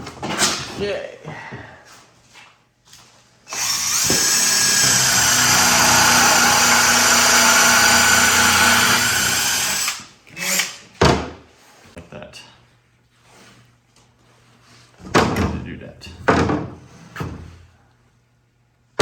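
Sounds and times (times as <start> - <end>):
power drill driving screw into wood: 3.5 - 10.8.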